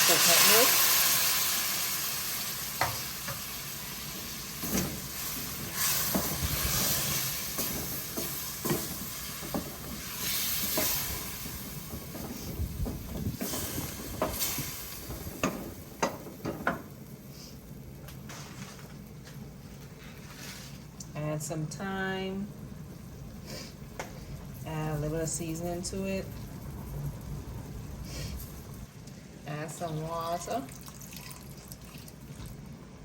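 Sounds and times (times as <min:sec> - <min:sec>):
potatoes sizzling in a pot: 0:00.0 - 0:17.5.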